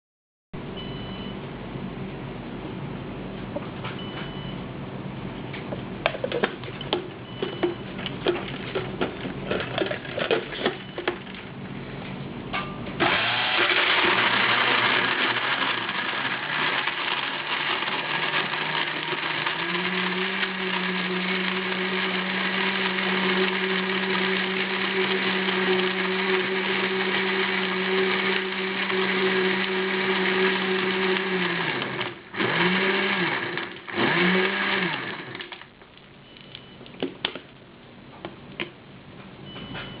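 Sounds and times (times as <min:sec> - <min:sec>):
blender motor running: 0:13.0 - 0:35.6.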